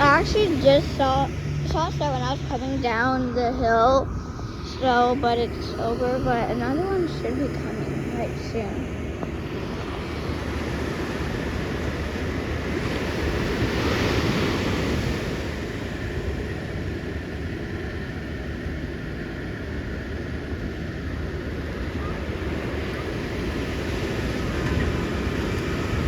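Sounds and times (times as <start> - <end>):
wave breaking: 0.0 - 16.4
wind on microphone: 0.0 - 17.9
steady rush of surf: 0.0 - 26.0.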